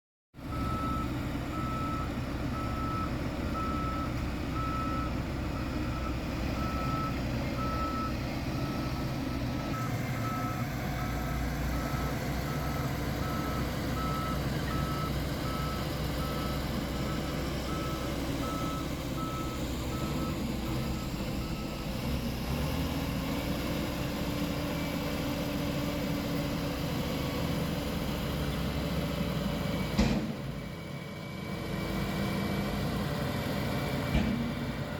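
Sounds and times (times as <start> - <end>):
reversing alarm beeping: 0.5 - 22.0.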